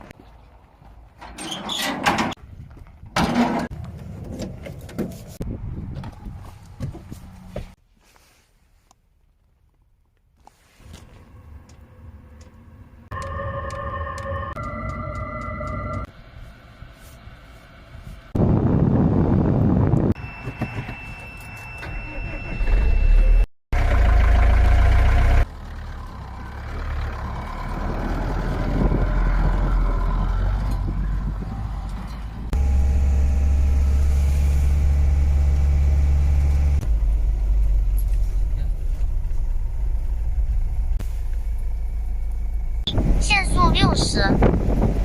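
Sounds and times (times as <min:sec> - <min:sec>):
road rumble: 0:00.0 - 0:45.0
vehicle engine: 0:22.1 - 0:43.3.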